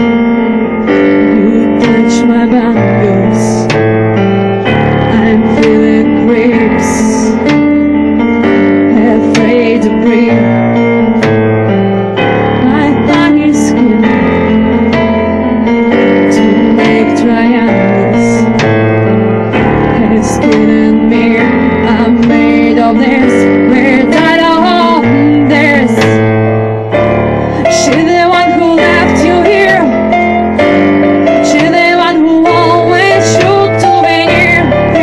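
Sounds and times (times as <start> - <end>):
woman singing: 0.0 - 3.8, 4.7 - 7.6, 8.5 - 11.3, 12.6 - 18.6, 19.8 - 26.2, 27.4 - 35.0
bass notes: 0.0 - 35.0
keyboard chords: 0.0 - 35.0
percussive hits: 7.3 - 8.7.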